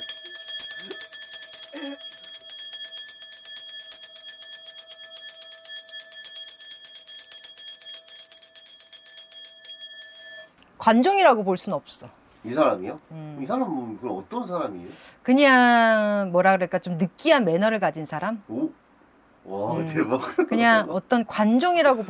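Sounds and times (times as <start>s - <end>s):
small brass bells jingling: 0.0s - 10.6s.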